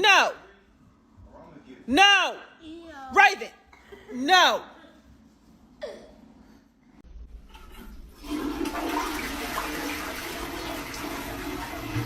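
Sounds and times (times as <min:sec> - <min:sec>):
toilet flushing: 0:07.3 - 0:12.0.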